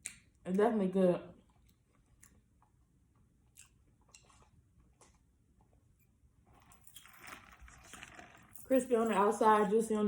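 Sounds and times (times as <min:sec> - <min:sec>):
person chewing crunchy food: 0:03.4 - 0:05.3.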